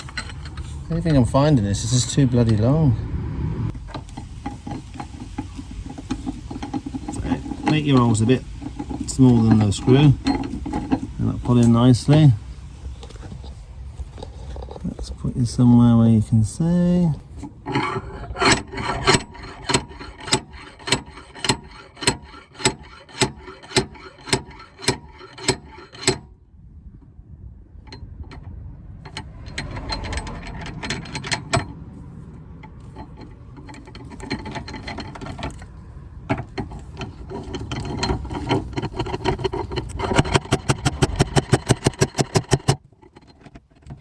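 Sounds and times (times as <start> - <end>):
scraping and handling: 0.0 - 2.8, 3.7 - 26.4, 27.8 - 44.0
ratchet mechanism clicking: 3.9 - 11.8, 17.4 - 26.3, 27.9 - 31.8, 36.3 - 44.0.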